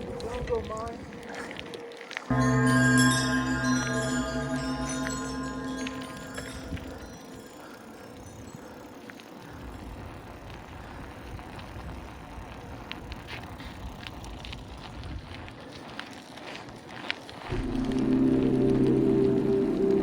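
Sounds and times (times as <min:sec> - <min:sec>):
bicycle tyre and wind noise: 0:06.8 - 0:19.8
low rumble: 0:17.5 - 0:20.0.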